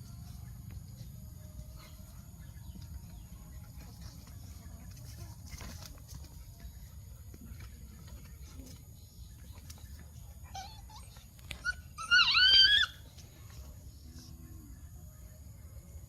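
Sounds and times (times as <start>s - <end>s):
dog yelping: 10.5s - 13.0s.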